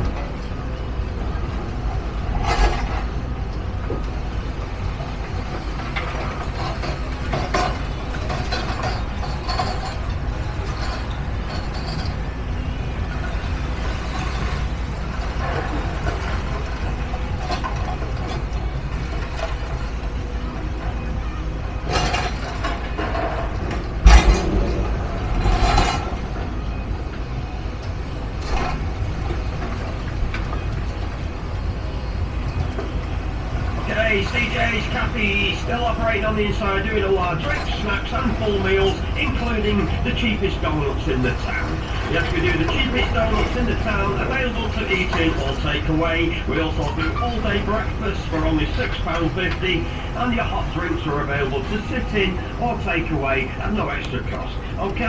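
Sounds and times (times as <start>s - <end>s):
low rumble of vehicles and machinery: 0.0s - 55.0s
knocks and clanks: 5.8s - 12.4s, 21.8s - 27.4s
loud bang: 24.0s - 26.4s.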